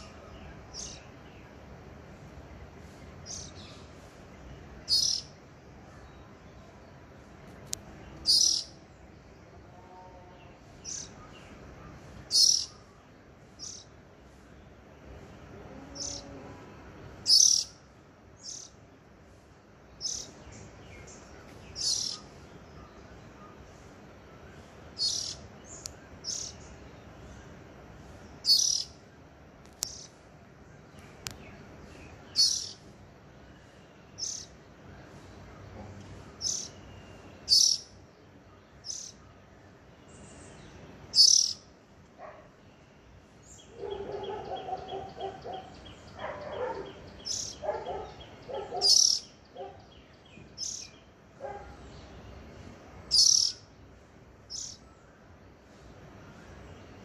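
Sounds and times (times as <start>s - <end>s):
small bird chirping: 3.0s - 4.0s, 4.7s - 5.4s, 7.7s - 8.8s, 10.8s - 13.0s, 13.6s - 14.0s, 17.2s - 17.8s, 18.4s - 18.8s, 20.0s - 23.8s, 24.7s - 26.8s, 28.3s - 30.2s, 31.0s - 32.9s, 33.6s - 34.6s, 35.4s - 38.0s, 38.6s - 39.4s, 40.1s - 41.7s, 43.5s - 53.7s, 54.4s - 55.0s
lower rapid bird notes: 8.0s - 8.8s, 10.8s - 13.9s, 41.1s - 41.6s, 43.6s - 51.1s, 51.8s - 53.7s.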